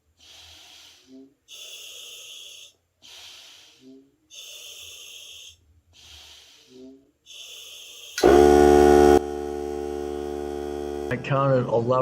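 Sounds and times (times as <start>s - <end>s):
breathing through a regulator: 0.1s - 8.2s
air compressor motor humming: 8.2s - 12.0s.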